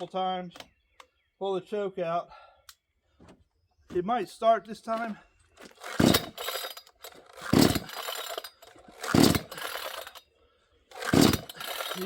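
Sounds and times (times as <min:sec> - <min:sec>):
chainsaw recoil starter pulled: 0:05.0 - 0:10.2, 0:10.9 - 0:12.0
chainsaw engine turning over: 0:05.6 - 0:10.2, 0:10.9 - 0:12.0.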